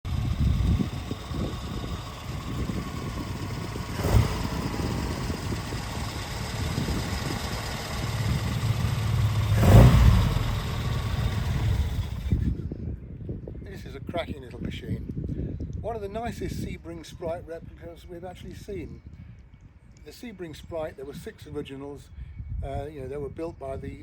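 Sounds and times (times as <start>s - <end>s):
car engine running: 0.0s - 12.4s.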